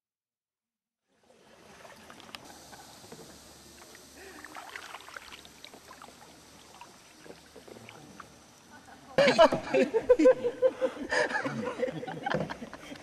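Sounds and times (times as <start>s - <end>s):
soft wash of water: 1.0s - 10.4s
paddle splashes: 1.2s - 8.5s
water dripping: 1.6s - 8.7s.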